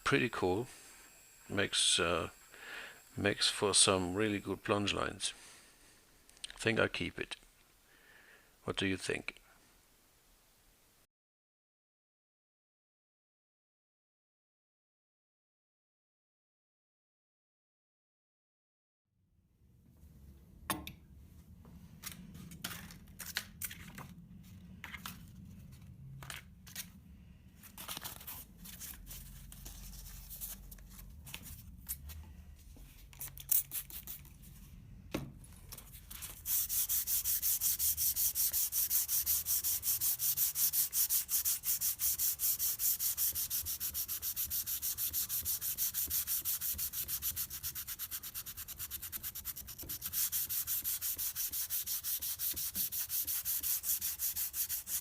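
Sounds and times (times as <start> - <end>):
sandpaper scraping steel: 36.2 - 55.0.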